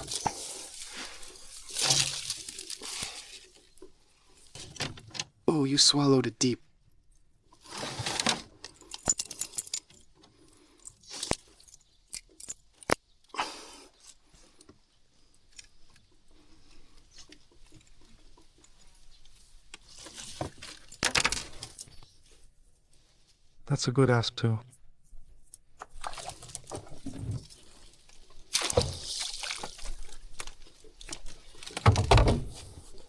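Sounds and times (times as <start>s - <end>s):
rustling of fish being handled: 0.0s - 5.1s, 25.1s - 33.0s
hooks and tackle clinking: 8.6s - 13.1s.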